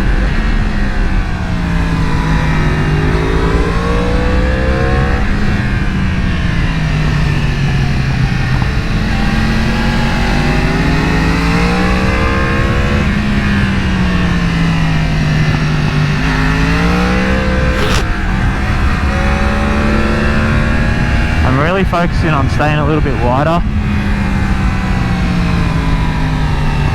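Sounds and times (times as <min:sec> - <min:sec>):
sharp click: 0:17.7 - 0:18.1.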